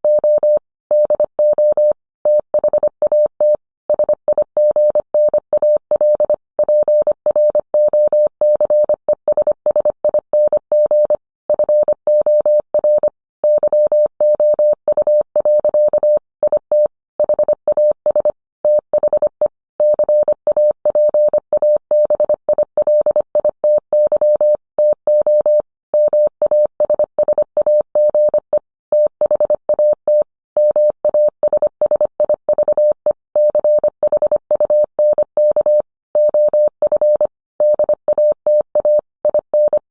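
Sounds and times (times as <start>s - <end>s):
morse code tone: 25.2s - 39.9s.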